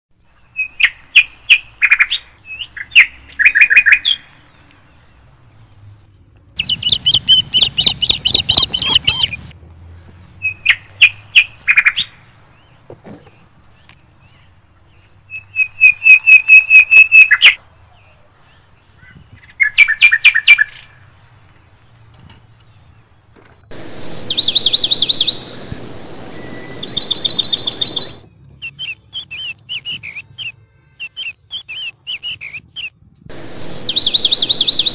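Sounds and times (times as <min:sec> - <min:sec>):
birds chirping: 0:00.1 - 0:34.9.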